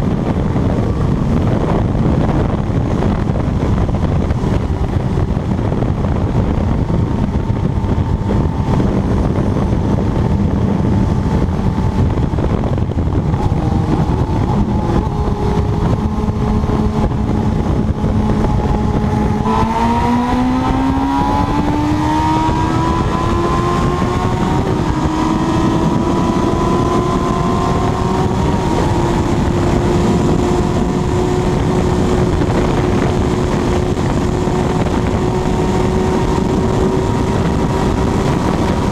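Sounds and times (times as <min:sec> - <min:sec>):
motorcycle engine accelerating: 0:00.0 - 0:38.9
wind rush: 0:00.0 - 0:38.9.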